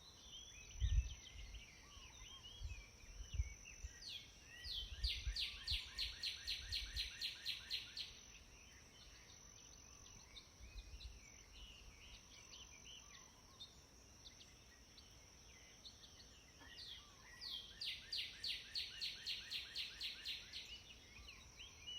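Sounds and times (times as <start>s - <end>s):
soft bird chirps: 0.0s - 21.9s
songbird fast trill: 15.6s - 21.9s.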